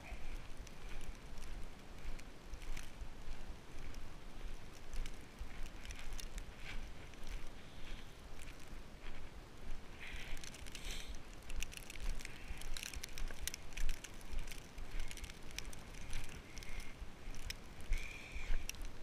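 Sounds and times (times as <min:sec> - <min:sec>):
footsteps crunching in snow: 0:00.0 - 0:19.0.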